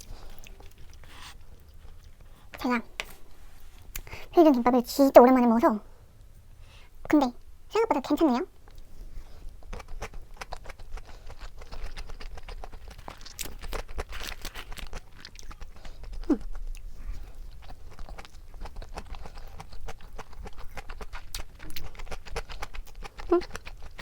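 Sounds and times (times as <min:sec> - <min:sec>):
wet chewing and mouth smacks: 0:00.0 - 0:02.6, 0:09.5 - 0:24.0.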